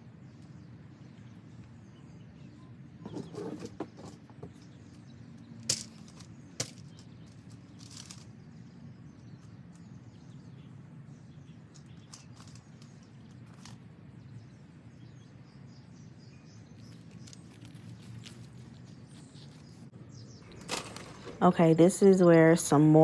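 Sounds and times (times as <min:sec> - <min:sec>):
rustling: 0:05.7 - 0:08.4, 0:16.8 - 0:22.1.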